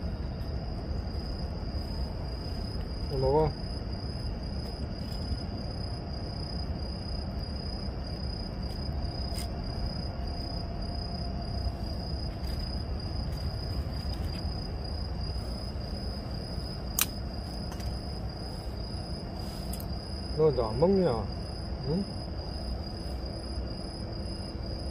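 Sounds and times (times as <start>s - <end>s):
insects trilling: 0.0s - 24.9s
low outdoor rumble: 0.0s - 24.9s
sharp click: 16.9s - 17.9s.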